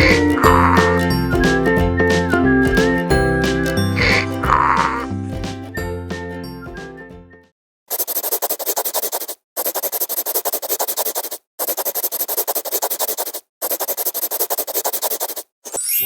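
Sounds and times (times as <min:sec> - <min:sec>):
pen scratching on paper: 0:07.9 - 0:15.5.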